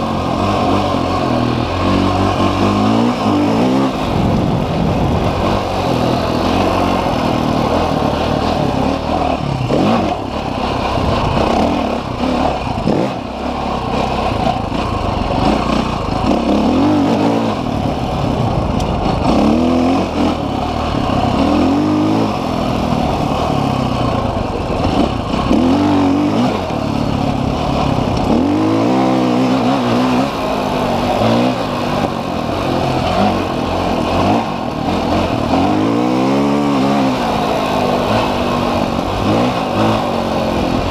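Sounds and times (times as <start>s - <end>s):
off-road motorcycle engine revving: 0.0s - 40.9s.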